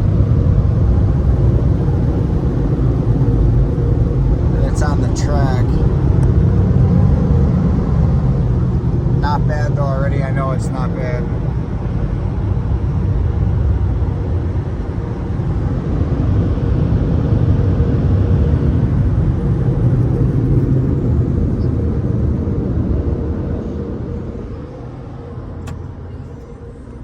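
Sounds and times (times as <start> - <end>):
car wash machinery rumbling: 0.0 - 27.0
short click: 25.6 - 25.9.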